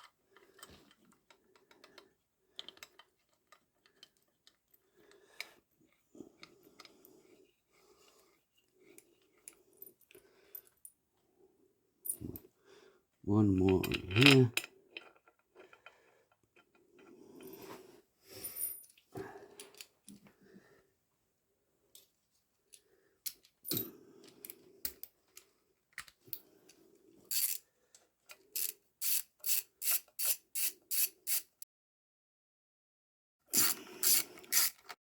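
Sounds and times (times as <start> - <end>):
hand ratchet clicking: 27.3 - 27.6, 28.6 - 31.5, 33.5 - 34.9.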